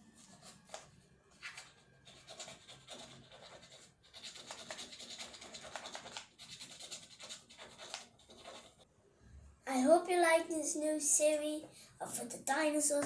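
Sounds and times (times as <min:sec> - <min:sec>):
toy egg shell scratching: 0:00.1 - 0:08.8.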